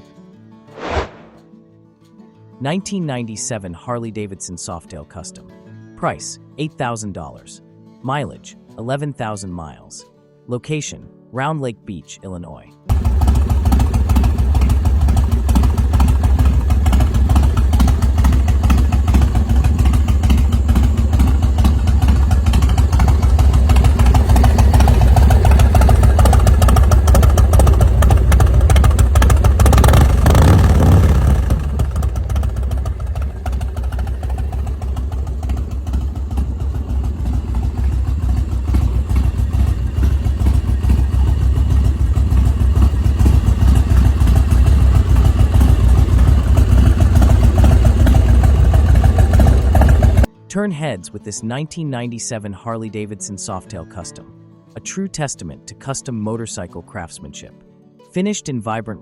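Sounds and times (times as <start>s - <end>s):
motorcycle engine deep rumble: 12.9s - 50.3s.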